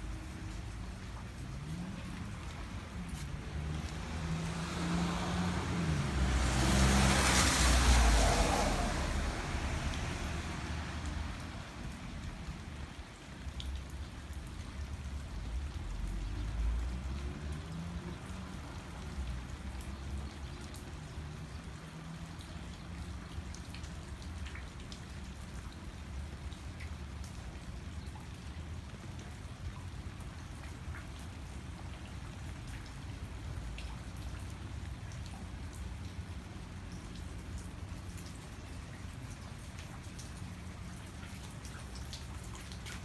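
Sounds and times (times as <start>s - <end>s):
steady rain falling: 0.0s - 43.0s
car tyres hissing on wet street: 0.1s - 12.7s.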